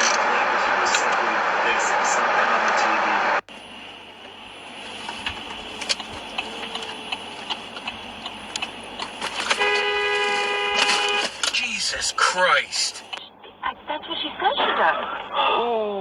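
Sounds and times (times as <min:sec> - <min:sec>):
road traffic noise: 0:00.0 - 0:15.8
car horn: 0:09.2 - 0:12.5.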